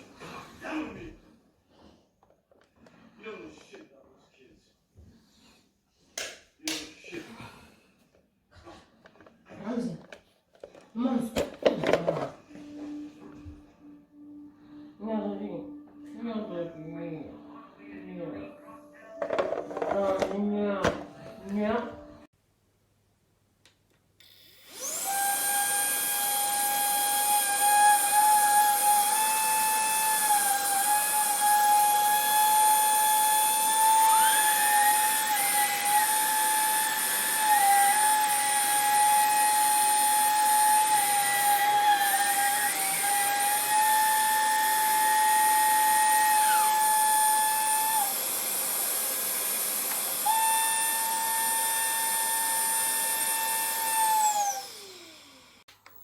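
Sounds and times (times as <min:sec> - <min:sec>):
stick vacuum whining: 0:19.1 - 0:21.6, 0:24.2 - 0:56.0.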